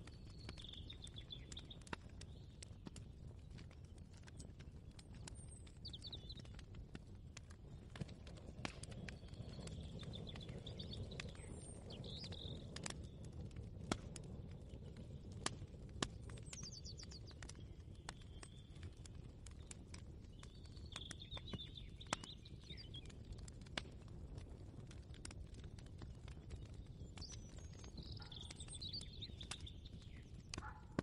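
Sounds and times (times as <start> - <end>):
bird chirping calls: 27.2 - 31.0.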